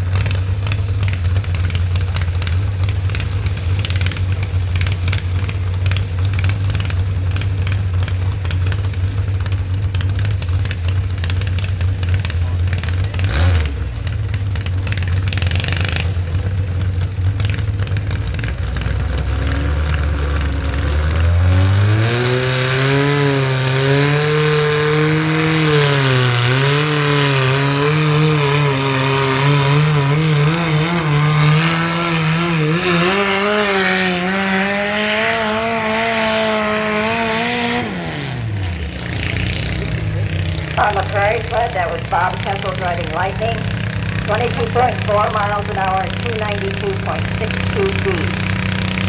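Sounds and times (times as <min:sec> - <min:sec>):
tractor engine revving under load: 0:00.0 - 0:49.0.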